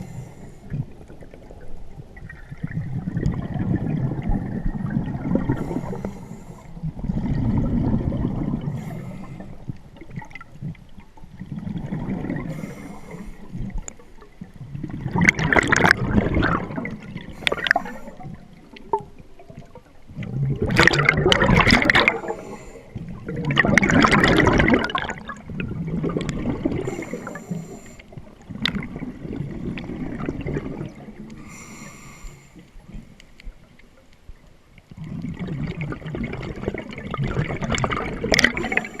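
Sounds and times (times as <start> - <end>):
diver breathing through regulator: 0.0 - 0.7, 5.5 - 6.8, 8.7 - 9.6, 12.4 - 13.6, 22.0 - 23.0, 26.8 - 28.2, 31.4 - 32.7, 38.5 - 39.0
bubbles rushing and gurgling: 0.0 - 32.1, 34.9 - 39.0.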